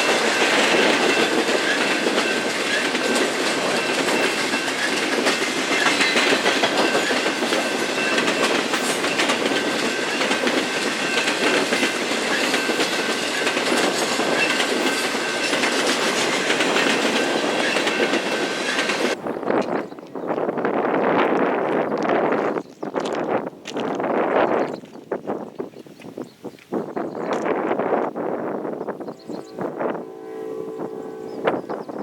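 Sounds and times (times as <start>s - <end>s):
train wheels clicking over rails: 0.0s - 20.5s
train rumble: 0.0s - 24.9s.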